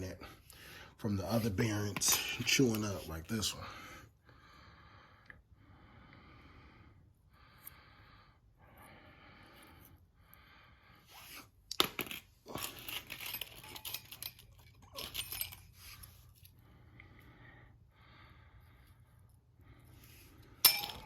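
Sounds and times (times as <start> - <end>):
metal parts clinking and rattling: 11.7 - 16.5, 20.6 - 21.0.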